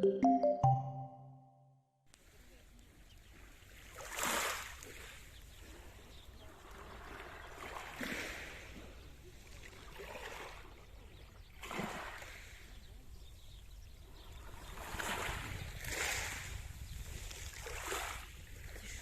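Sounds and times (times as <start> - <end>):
small waves breaking on shore: 3.2 - 13.2, 14.0 - 19.0.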